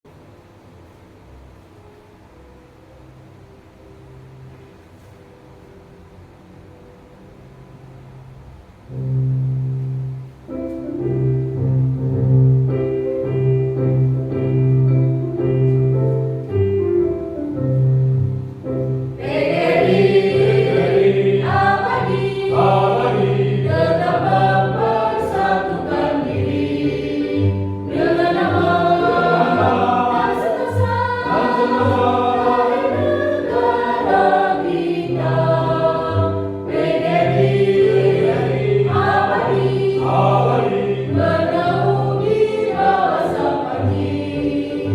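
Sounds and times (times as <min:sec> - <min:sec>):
instrumental accompaniment: 0:01.5 - 0:44.9
children's choir singing: 0:19.2 - 0:44.9.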